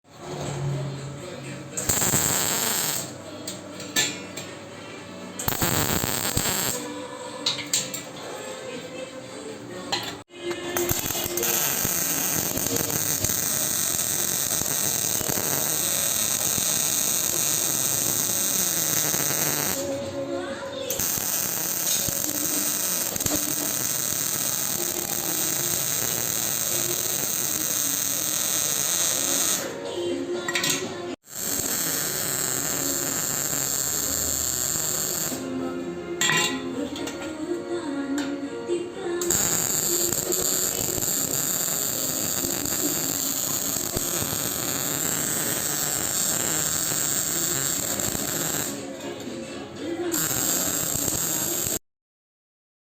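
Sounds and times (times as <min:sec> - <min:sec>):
welding arc hissing: 0:01.8 - 0:03.2, 0:05.4 - 0:06.9, 0:10.8 - 0:19.9, 0:20.9 - 0:29.7, 0:31.2 - 0:35.4, 0:39.3 - 0:48.9, 0:50.1 - 0:51.8.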